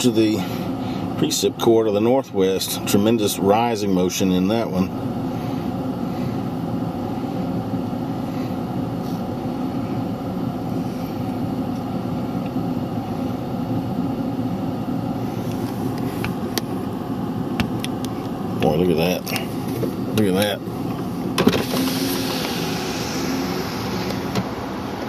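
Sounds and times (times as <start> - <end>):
car engine drone inside cabin: 0.0 - 25.0
road hiss: 21.4 - 25.0.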